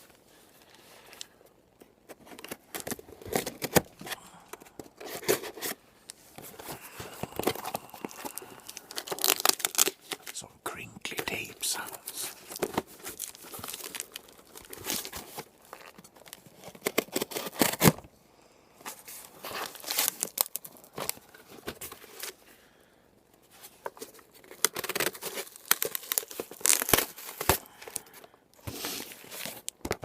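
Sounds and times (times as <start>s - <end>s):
packaging crinkling: 6.4s - 10.4s, 11.1s - 18.0s, 19.2s - 22.4s, 23.9s - 28.2s
packing tape peeling and tearing: 7.2s - 10.3s, 12.3s - 18.0s, 19.6s - 20.8s, 24.4s - 27.6s.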